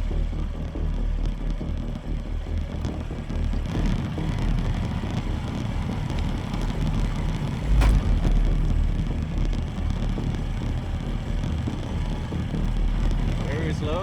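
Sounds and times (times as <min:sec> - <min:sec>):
motorcycle riding over gravel: 0:00.4 - 0:14.0
sharp knock: 0:07.6 - 0:08.4.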